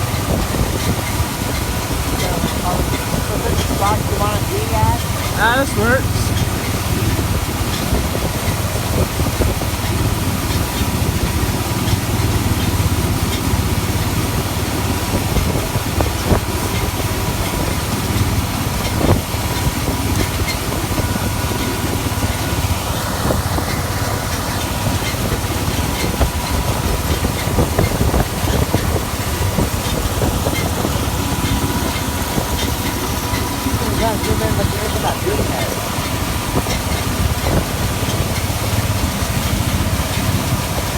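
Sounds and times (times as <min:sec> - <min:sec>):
thin steady whine: 0:00.0 - 0:07.6, 0:20.5 - 0:40.1
heavy machinery engine droning: 0:00.0 - 0:40.9.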